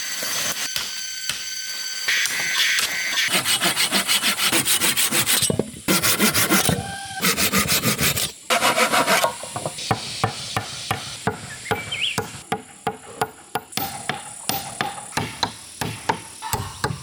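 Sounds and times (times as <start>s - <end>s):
hand tool rasping on wood: 3.3s - 9.3s.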